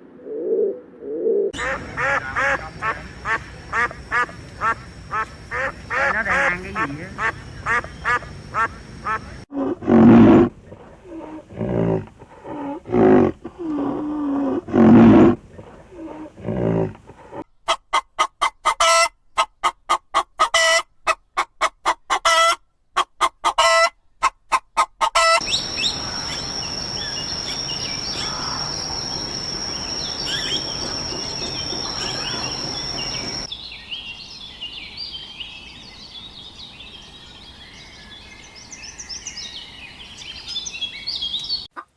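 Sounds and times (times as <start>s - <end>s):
bird chirps: 1.6s - 9.4s, 25.4s - 41.7s
sharp clucks: 1.6s - 9.4s, 17.1s - 26.3s
poultry calling: 1.6s - 9.5s, 24.8s - 33.5s
soft birdsong: 1.6s - 9.5s, 25.4s - 41.7s
steady high-pitched whine: 25.4s - 33.5s.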